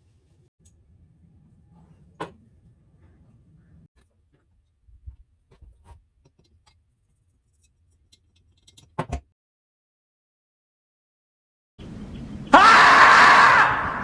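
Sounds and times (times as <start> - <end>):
faint low hum: 0.0 - 8.4
tools and metal parts clicking: 5.6 - 9.2.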